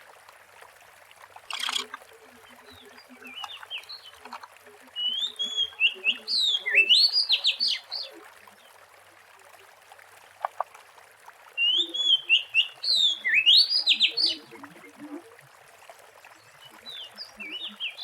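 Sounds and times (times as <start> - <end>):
short clicks: 1.5 - 2.0
bird singing whistles: 5.0 - 7.8, 11.6 - 14.4.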